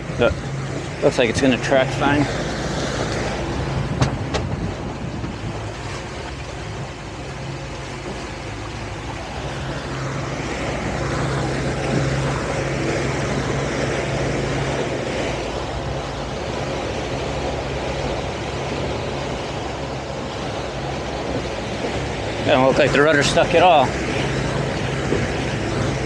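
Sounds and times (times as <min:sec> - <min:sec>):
boat engine humming: 0:00.0 - 0:26.0
rushing water: 0:00.0 - 0:26.0
rushing wind: 0:00.0 - 0:26.0.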